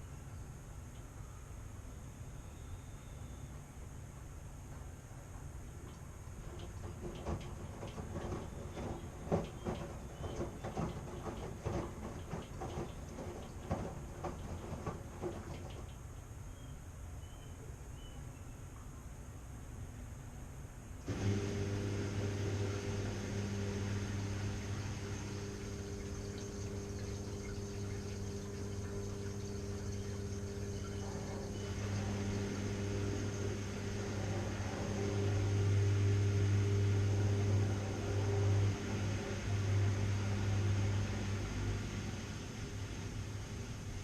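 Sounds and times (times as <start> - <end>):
washing machine motor hum: 5.1 - 16.5, 21.0 - 44.0.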